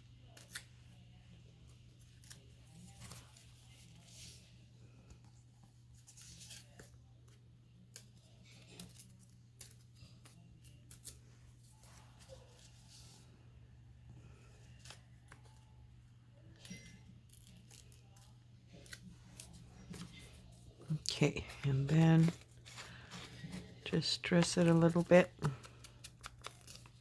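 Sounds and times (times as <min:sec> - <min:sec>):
low steady hum: 0:00.0 - 0:27.0
scissors snipping paper: 0:16.6 - 0:20.5, 0:21.4 - 0:27.0
paper rustling: 0:17.3 - 0:27.0.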